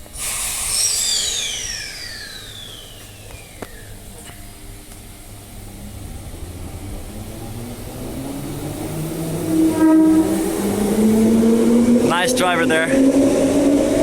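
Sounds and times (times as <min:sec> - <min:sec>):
electric train motor whine: 0:00.0 - 0:14.0
short strong horn tone: 0:09.7 - 0:10.6.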